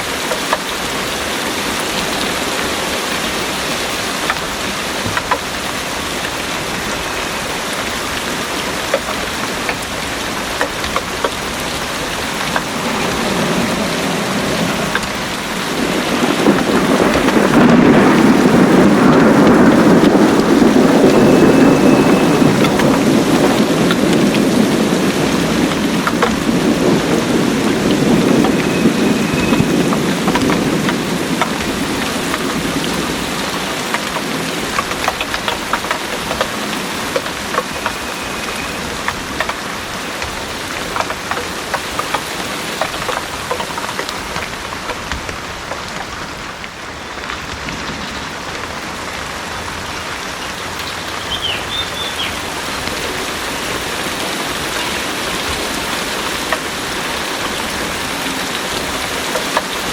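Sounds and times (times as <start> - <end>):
heavy rain pouring: 0.0 - 59.9
low thunder rumble: 2.0 - 41.3
faint high whistles: 21.0 - 22.7, 28.6 - 29.7.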